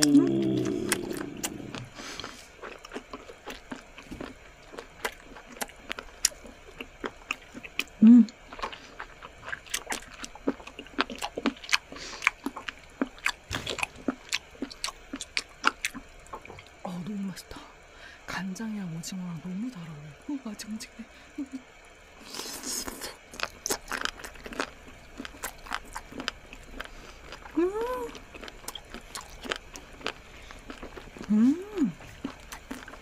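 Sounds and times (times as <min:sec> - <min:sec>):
person humming mm: 0:00.0 - 0:02.0, 0:08.0 - 0:08.4, 0:27.5 - 0:28.2, 0:31.2 - 0:32.0.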